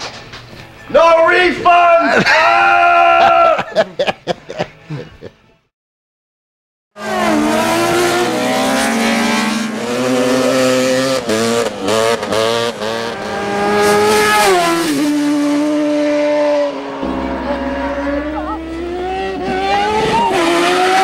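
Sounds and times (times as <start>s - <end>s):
racing motorcycle engine revving: 7.0s - 21.0s.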